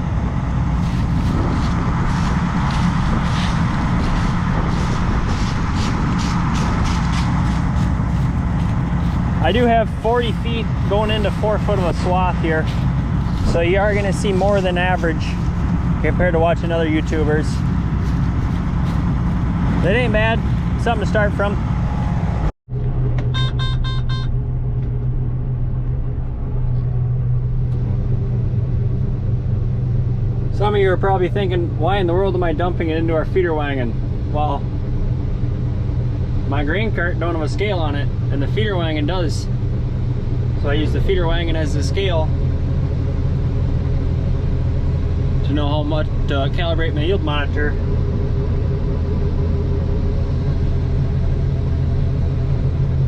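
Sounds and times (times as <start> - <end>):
combine harvester engine hum: 0.0 - 53.0
short electronic beeps: 23.3 - 24.3.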